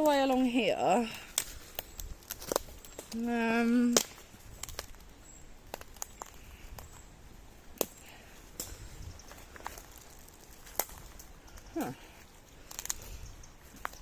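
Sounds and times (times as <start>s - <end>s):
footsteps crunching on woodland ground: 0.0s - 14.0s
twigs snapping: 0.0s - 14.0s.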